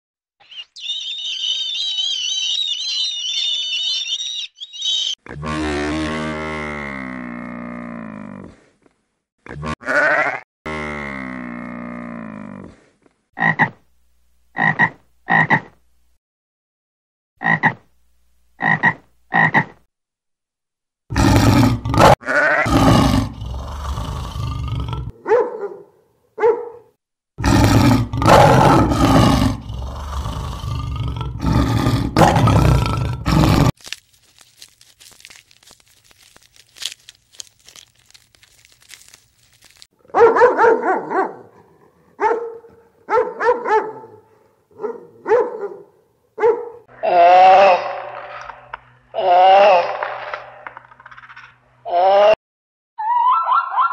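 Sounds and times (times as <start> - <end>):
dog barking: 25.2 - 26.9, 40.1 - 46.9, 53.3 - 53.9.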